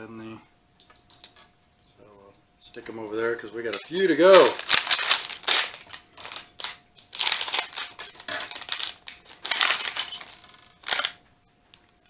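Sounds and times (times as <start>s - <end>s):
packet crinkling and tearing: 3.7s - 11.2s.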